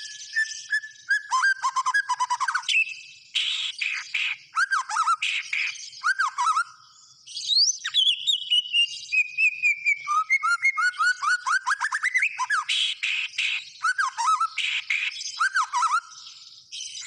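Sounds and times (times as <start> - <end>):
bird singing whistled notes: 0.0 - 17.0
bird harsh chattering: 3.4 - 5.8, 12.3 - 16.0.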